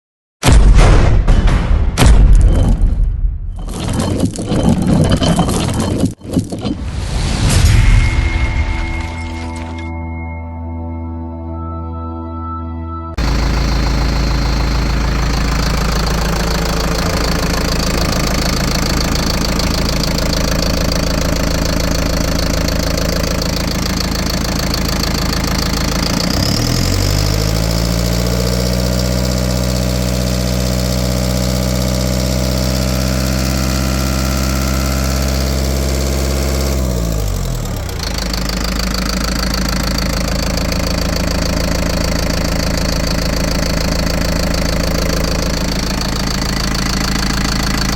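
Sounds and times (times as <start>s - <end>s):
diesel engine idling and revving: 13.2s - 47.9s.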